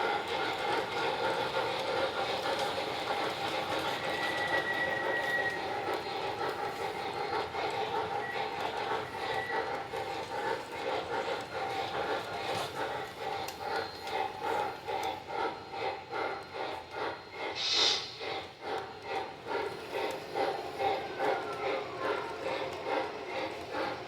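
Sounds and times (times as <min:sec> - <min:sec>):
train wheels rolling rhythmically: 0:00.0 - 0:24.0
short hiss: 0:17.6 - 0:18.2.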